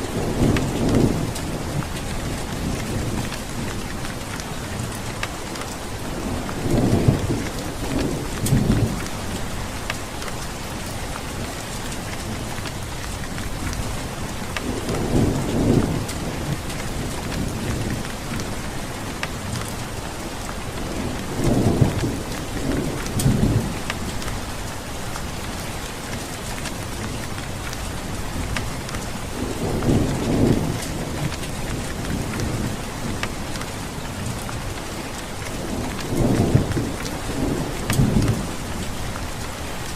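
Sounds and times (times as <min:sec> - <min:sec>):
steady rain falling: 0:00.0 - 0:39.9
thunder rumbling: 0:20.5 - 0:24.6, 0:28.0 - 0:39.9.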